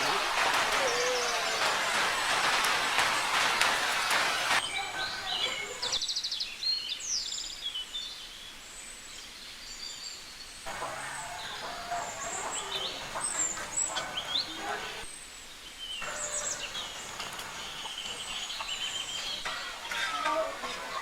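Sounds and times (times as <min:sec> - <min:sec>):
steady rushing noise: 0:00.0 - 0:04.7
small birds chirping: 0:00.0 - 0:21.0.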